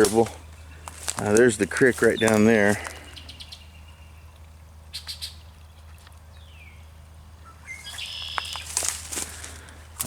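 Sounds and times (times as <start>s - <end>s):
faint wild birds calling: 0.0s - 10.0s
steady low hum: 0.0s - 10.0s
short crackles: 8.3s - 10.0s.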